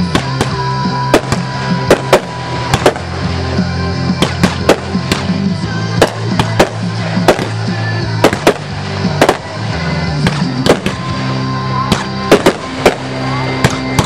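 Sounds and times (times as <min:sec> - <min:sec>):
fireworks bursting with bangs: 0:00.0 - 0:14.0
music with low notes: 0:00.0 - 0:14.0.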